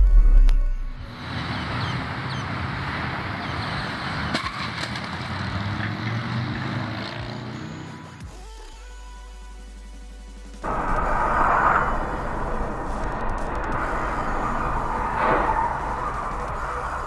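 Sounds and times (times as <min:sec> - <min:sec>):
tyres rushing on road: 0:01.1 - 0:08.2, 0:10.6 - 0:17.0
engine rumble: 0:10.5 - 0:17.0.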